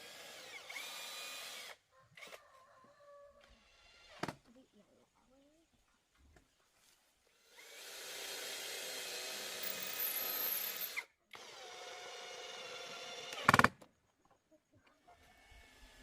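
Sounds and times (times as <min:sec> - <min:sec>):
power drill whining: 0:00.0 - 0:02.4, 0:07.4 - 0:13.7.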